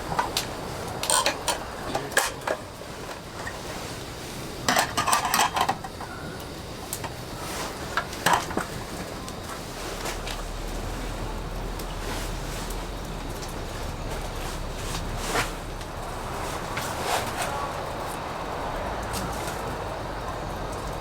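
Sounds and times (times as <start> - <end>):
camp cookware clinking: 0.0 - 15.2
rain hissing: 0.0 - 21.0.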